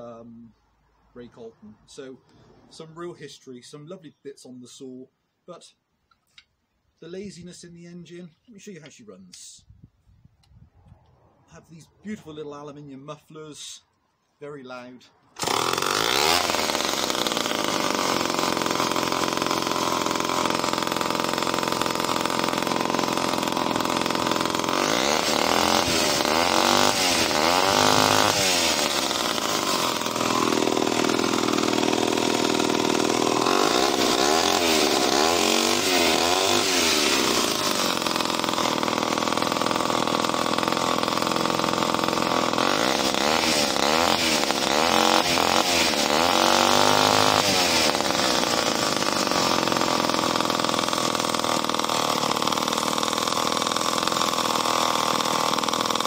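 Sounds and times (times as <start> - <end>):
chainsaw running and revving: 15.4 - 56.0.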